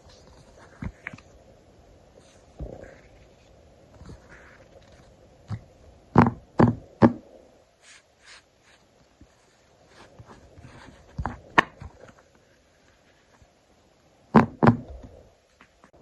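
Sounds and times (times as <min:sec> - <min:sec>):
paper rustling and scraping: 0:07.8 - 0:12.3.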